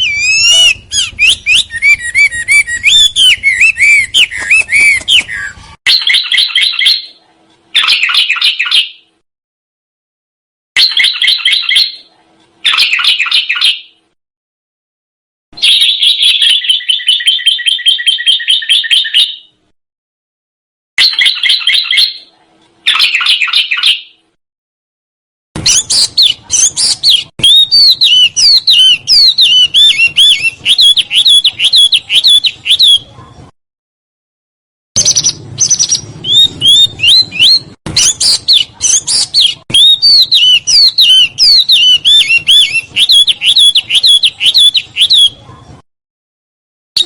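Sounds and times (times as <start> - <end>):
songbird whistled song: 0.0 - 9.2, 10.8 - 14.1, 15.6 - 19.6, 21.0 - 24.2, 25.6 - 33.2, 35.0 - 45.7.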